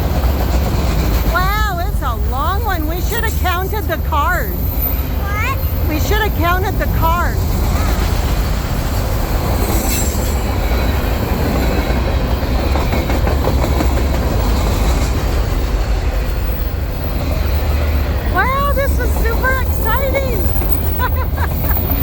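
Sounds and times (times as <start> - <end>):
train wheels rumbling on rails: 0.0 - 22.0
high-pitched train screech: 3.0 - 14.9, 16.4 - 21.0.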